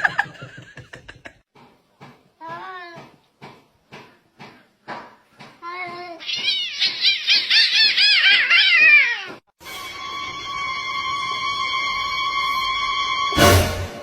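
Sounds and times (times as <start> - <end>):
cat meowing: 6.2 - 9.4
music with held notes: 13.4 - 14.0.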